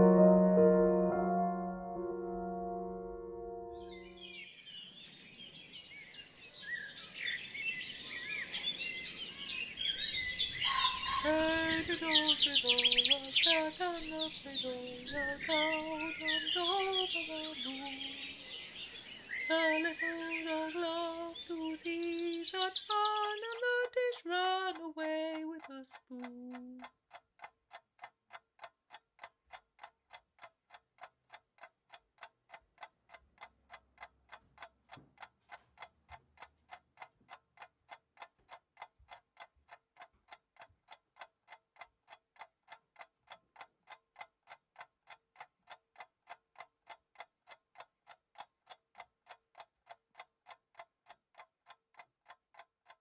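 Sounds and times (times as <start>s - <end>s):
stepping pitched notes: 0.0s - 4.2s
clock ticking: 23.2s - 53.0s.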